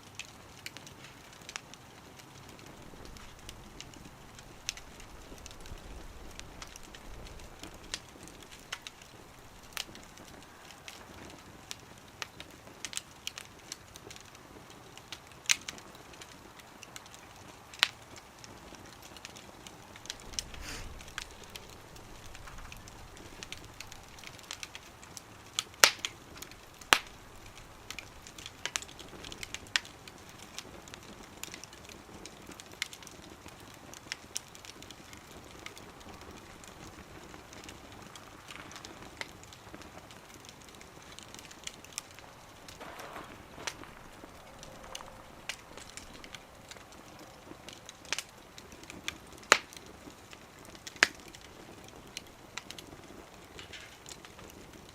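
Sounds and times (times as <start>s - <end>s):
sharp pops of burning wood: 0.0s - 54.9s
wood fire crackling: 0.0s - 54.9s
faint hiss: 18.4s - 31.1s, 34.3s - 50.4s.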